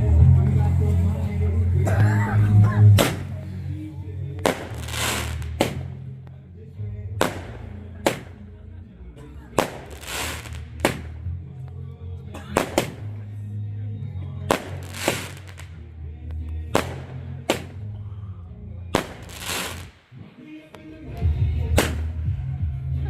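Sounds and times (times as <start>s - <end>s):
bass-heavy music: 0.0s - 23.0s
fireworks bangs: 2.9s - 3.4s, 4.4s - 6.1s, 7.2s - 8.4s, 9.6s - 11.3s, 12.6s - 13.1s, 14.5s - 15.7s, 16.7s - 17.8s, 19.0s - 20.0s
fireworks crackling hiss: 4.4s - 5.9s, 9.6s - 11.2s, 14.5s - 15.8s, 19.0s - 20.1s.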